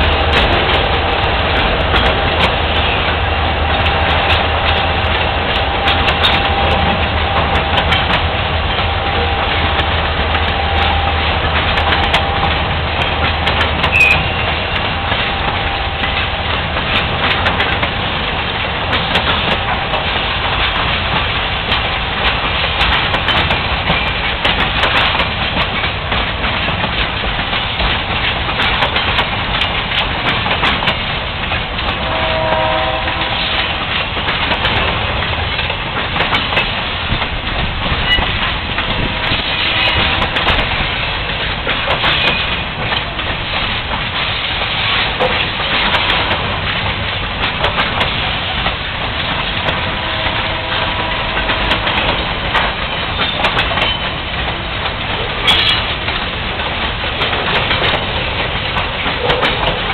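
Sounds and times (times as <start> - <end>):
freight train rumble: 0.0 - 59.9
wheels clacking over rail joints: 0.0 - 59.9
brief tone: 13.9 - 14.5.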